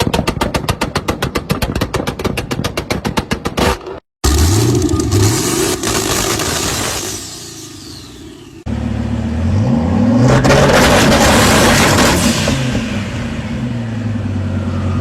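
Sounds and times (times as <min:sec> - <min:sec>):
car engine accelerating: 0:04.2 - 0:15.0
engine revving: 0:04.2 - 0:15.0.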